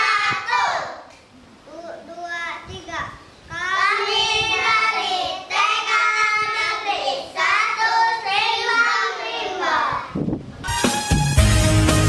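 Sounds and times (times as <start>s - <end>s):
children's choir singing: 0.0s - 1.1s, 3.6s - 10.2s.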